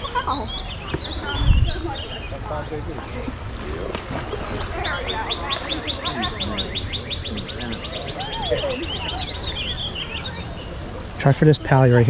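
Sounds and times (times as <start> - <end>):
songbird trilling: 3.7 - 11.4.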